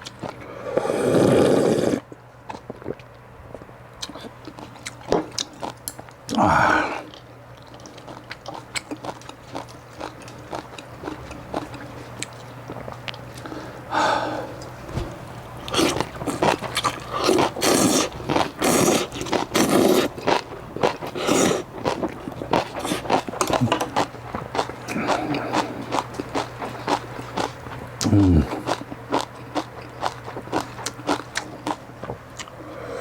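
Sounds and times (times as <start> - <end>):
loud slurping of noodles: 0.4 - 2.0, 17.1 - 20.1, 21.2 - 21.6.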